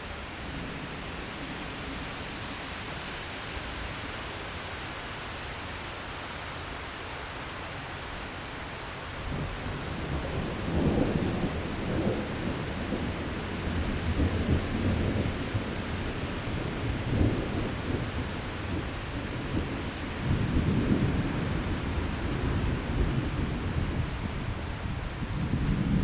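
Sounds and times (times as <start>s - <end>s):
strong gusty wind: 8.1s - 26.0s.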